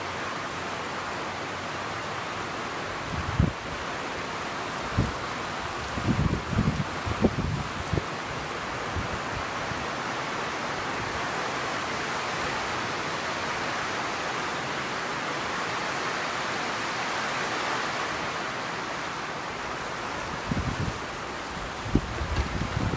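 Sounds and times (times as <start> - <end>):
torrential rain: 0.0 - 22.9
wind buffeting microphone: 3.1 - 3.7, 4.9 - 9.8, 20.3 - 22.9.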